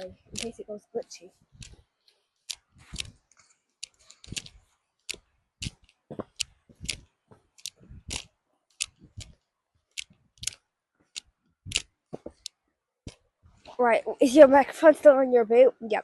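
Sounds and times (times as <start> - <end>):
footsteps and scuffs: 2.6 - 9.4, 11.7 - 12.5.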